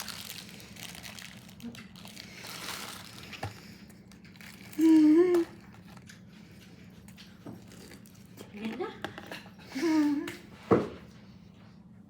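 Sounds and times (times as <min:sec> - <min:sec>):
faint crinkling: 0:00.0 - 0:06.6.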